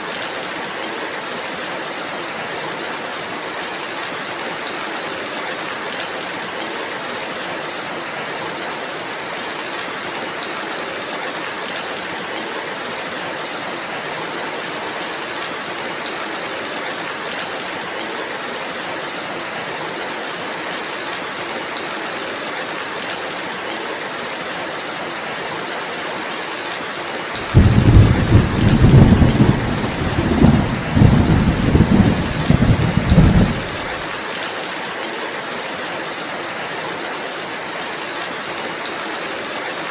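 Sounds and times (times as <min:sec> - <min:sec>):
rolling thunder rumble: 0:27.4 - 0:34.0
rain hissing: 0:27.4 - 0:34.2.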